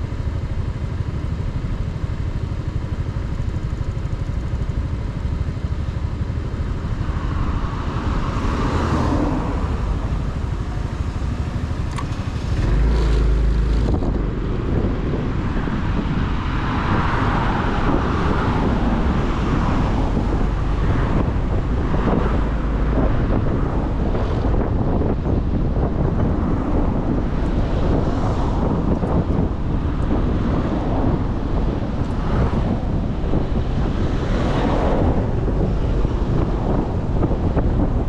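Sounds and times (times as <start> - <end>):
motorcycle engine running: 0.0 - 8.6, 9.2 - 38.0
road and wind noise: 0.0 - 38.0.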